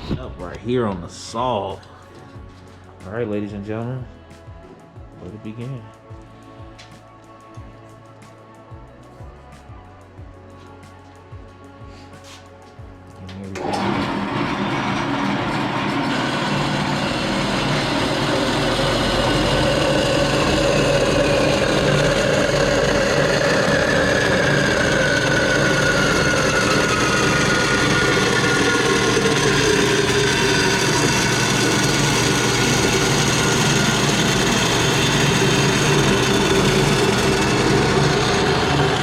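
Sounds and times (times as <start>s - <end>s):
power saw cutting metal: 13.6s - 39.0s.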